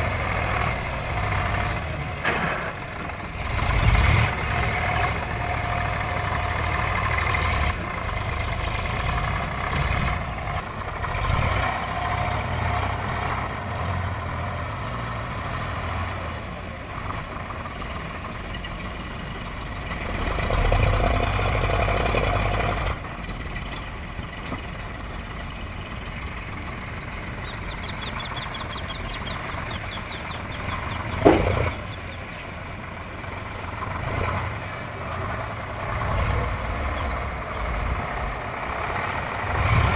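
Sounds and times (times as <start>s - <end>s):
heavy vehicle engine running: 0.0s - 39.9s.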